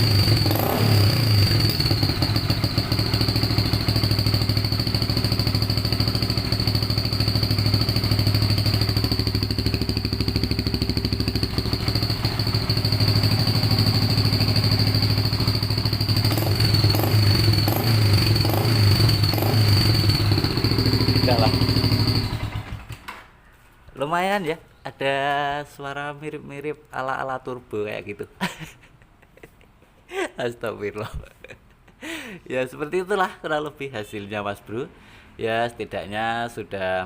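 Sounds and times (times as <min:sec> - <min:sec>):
high turbo whistle: 0:00.0 - 0:04.5, 0:05.5 - 0:22.7
motorcycle engine revving: 0:00.0 - 0:23.1.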